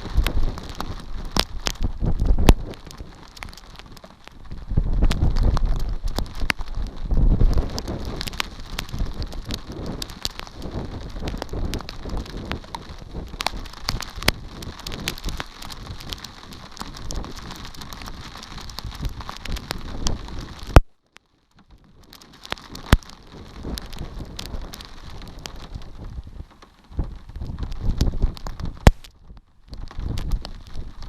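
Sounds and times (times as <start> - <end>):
rain falling: 0.0 - 31.0.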